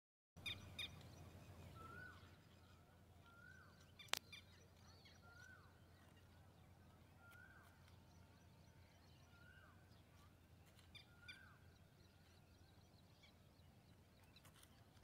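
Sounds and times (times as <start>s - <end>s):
faint bird calls: 0.4s - 12.3s
low rumble of wind: 0.4s - 15.0s.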